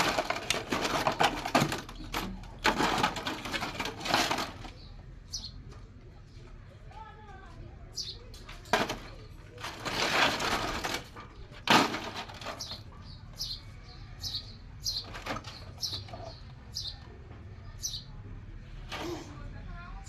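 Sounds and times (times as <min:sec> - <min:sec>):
bird chirping: 0:04.7 - 0:05.7, 0:12.5 - 0:18.2.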